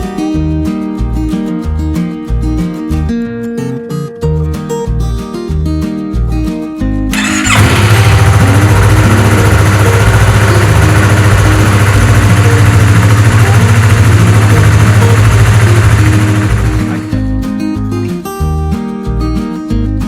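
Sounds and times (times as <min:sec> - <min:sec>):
motorcycle engine starting and idling: 0:07.1 - 0:17.2.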